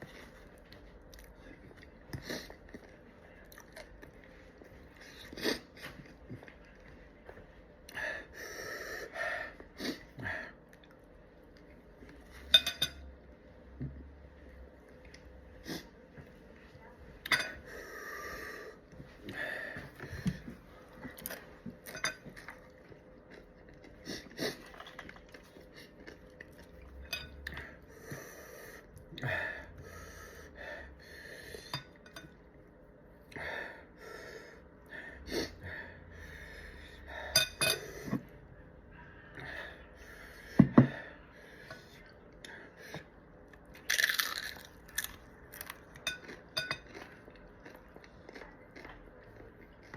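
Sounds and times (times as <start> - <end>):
cutlery clinking on a plate: 12.5 - 13.0
food crunching: 20.2 - 27.6, 43.5 - 49.9
breathing: 27.6 - 31.9, 33.3 - 38.3, 38.9 - 43.1.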